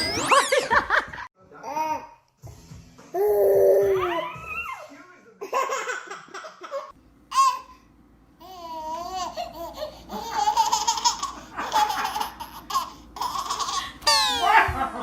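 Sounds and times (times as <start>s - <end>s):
baby babbling: 3.2s - 4.6s
baby squealing: 3.2s - 4.8s, 12.4s - 14.6s
baby laughing: 8.4s - 15.0s.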